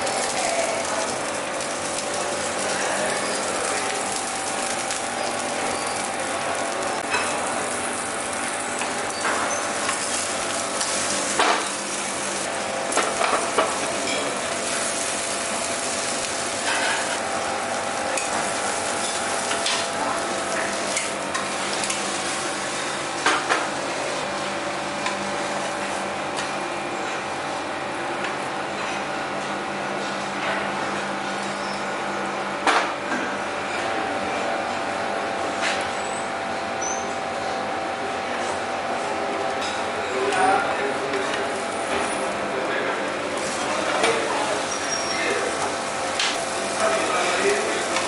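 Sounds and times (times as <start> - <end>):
food sizzling in a pan: 0.0 - 23.0, 43.4 - 48.0.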